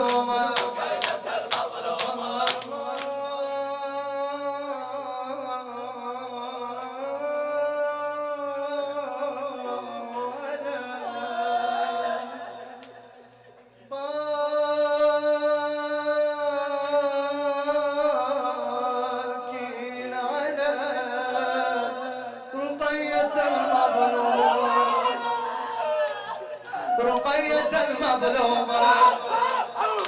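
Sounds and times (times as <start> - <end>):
men chanting: 0.0 - 7.4, 8.8 - 12.8, 17.7 - 30.0.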